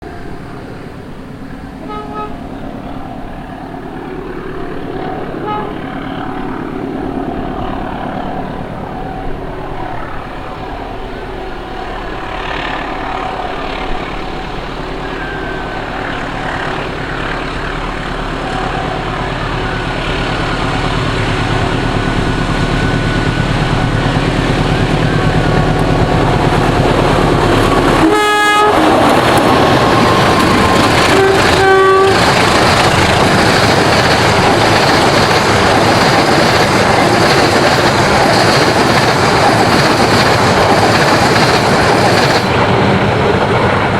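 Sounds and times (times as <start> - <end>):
train rumble: 0.0 - 43.9
locomotive horn blast: 1.8 - 2.9, 5.1 - 6.4, 10.6 - 32.8.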